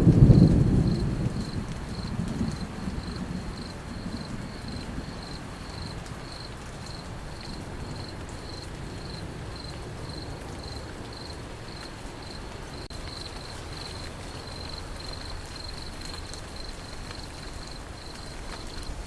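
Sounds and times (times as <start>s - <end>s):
thunder roll: 0.0s - 10.3s
crickets chirping: 0.2s - 19.0s.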